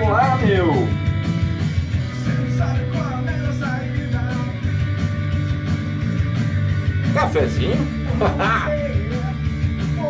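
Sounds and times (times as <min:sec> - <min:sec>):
rock song with drums and guitar: 0:00.0 - 0:10.0.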